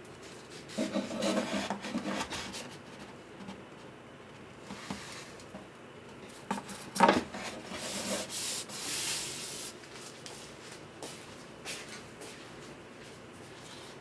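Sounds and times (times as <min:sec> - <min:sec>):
loud scrape on wood: 0:00.7 - 0:02.6, 0:07.1 - 0:09.2
hand-sanding wood: 0:07.7 - 0:09.7.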